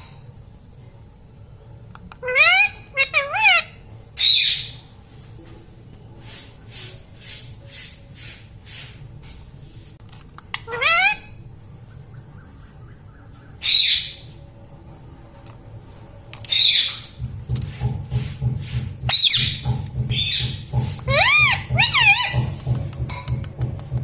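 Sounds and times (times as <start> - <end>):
parrot squawk: 2.2 - 4.8, 10.6 - 11.4, 13.5 - 14.2, 21.1 - 22.5.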